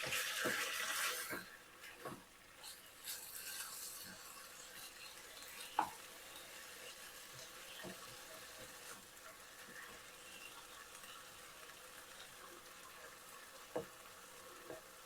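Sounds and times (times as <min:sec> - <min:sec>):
chicken sizzling in skillet: 0:00.0 - 0:15.0
utensil tapping against pan: 0:13.7 - 0:14.0.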